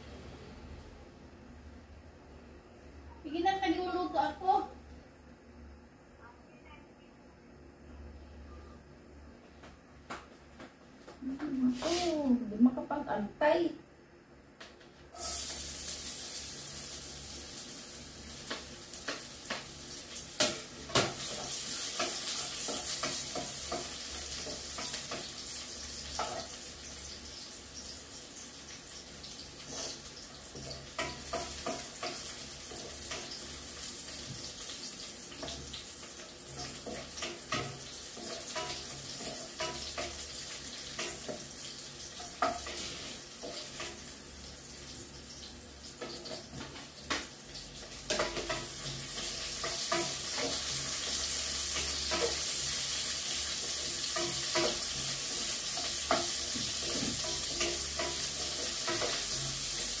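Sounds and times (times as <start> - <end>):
oil sizzling in a wok: 15.1 - 60.0
metal spatula scraping a pan: 48.1 - 60.0.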